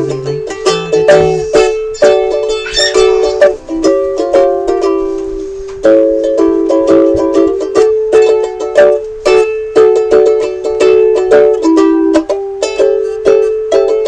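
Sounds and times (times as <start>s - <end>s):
ukulele strumming: 0.0s - 14.0s.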